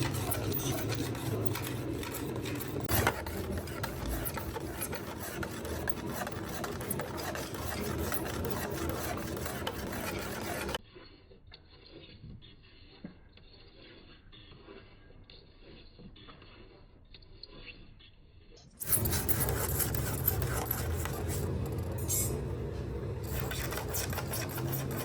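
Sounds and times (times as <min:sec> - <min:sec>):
sanding plastic: 0:00.0 - 0:10.8, 0:18.8 - 0:21.9, 0:23.2 - 0:25.0.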